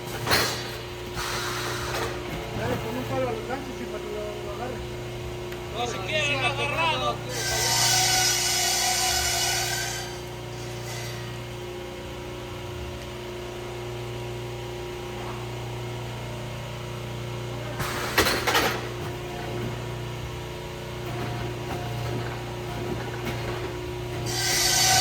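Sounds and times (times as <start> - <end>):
sawmill machinery humming: 0.0 - 25.0
saw rasping through wood: 7.3 - 11.3, 24.2 - 25.0.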